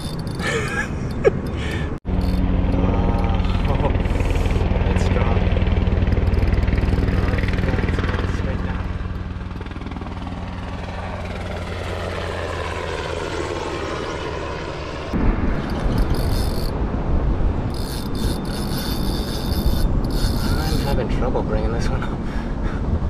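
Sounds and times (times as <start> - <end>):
rough uneven rumbling: 0.0 - 11.1, 15.2 - 21.2
motor droning: 0.0 - 16.9, 17.6 - 21.0.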